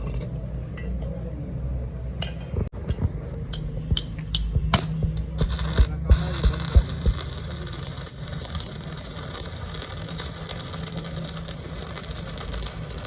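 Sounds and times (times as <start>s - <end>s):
sharp clicks: 2.9s - 12.5s
low machine hum: 2.9s - 13.0s
metal clinking and tapping: 4.4s - 13.0s.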